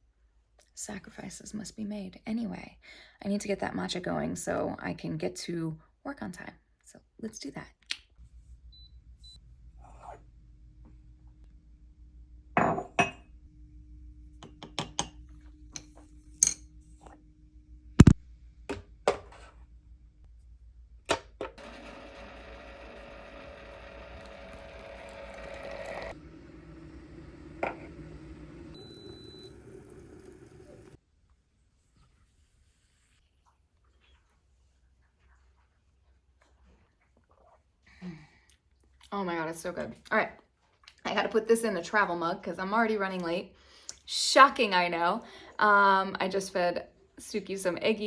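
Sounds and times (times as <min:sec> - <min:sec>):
kitchenware clinking and knocking: 0:12.6 - 0:13.3, 0:14.4 - 0:15.2, 0:18.7 - 0:19.6.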